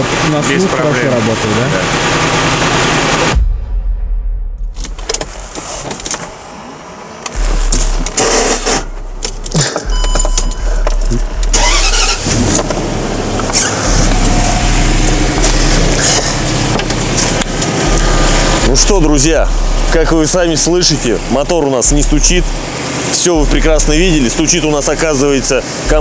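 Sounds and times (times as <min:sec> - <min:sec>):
car engine running: 0:00.0 - 0:26.0
low rumbling: 0:01.3 - 0:26.0
microphone handling noise: 0:04.6 - 0:06.4, 0:07.3 - 0:11.6.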